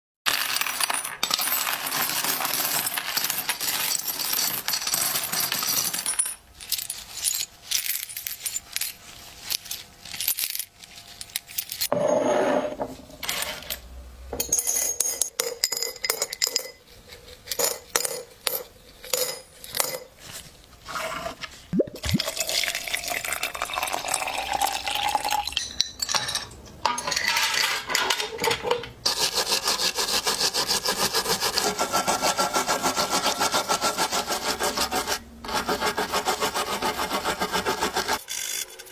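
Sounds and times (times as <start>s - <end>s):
metal coins clinking and dropping: 0.3s - 12.2s, 14.4s - 16.8s.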